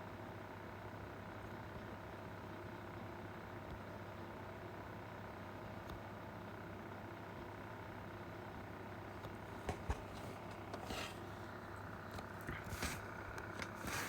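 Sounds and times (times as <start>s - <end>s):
pencil scratching on paper: 9.7s - 11.3s.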